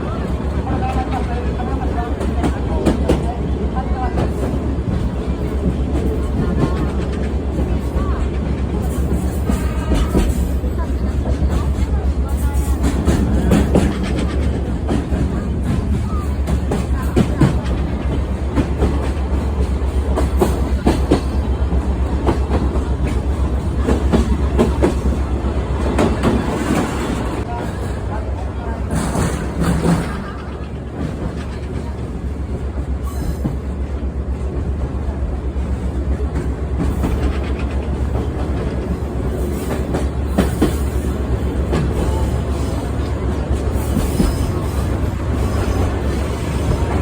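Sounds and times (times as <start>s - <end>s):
trolley train rumbling: 0.0s - 47.0s
wheels clacking over rail joints: 4.2s - 27.8s, 28.8s - 32.4s.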